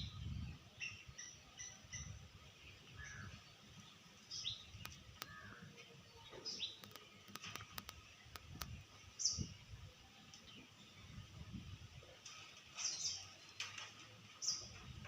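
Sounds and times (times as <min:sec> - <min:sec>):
birds chirping: 0:00.0 - 0:15.0
sharp clicks: 0:06.7 - 0:08.8.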